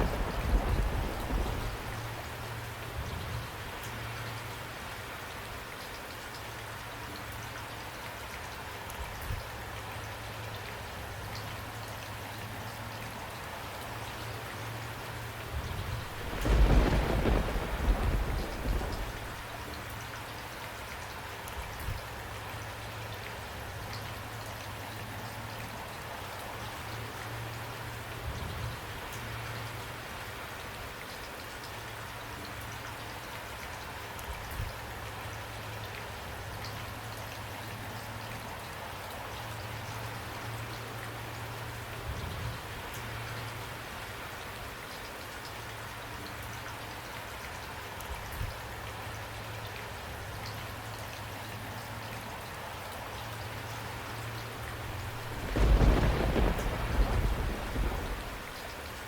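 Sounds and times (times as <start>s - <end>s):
rain hissing: 0.0s - 3.0s, 15.1s - 19.8s, 53.6s - 59.0s.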